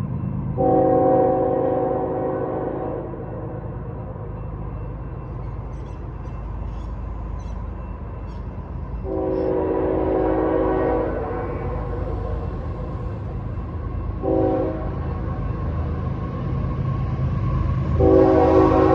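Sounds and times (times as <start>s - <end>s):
train rumbling: 0.0s - 18.9s
train horn blast: 0.6s - 3.3s, 9.0s - 12.1s, 14.2s - 15.0s, 18.0s - 18.9s.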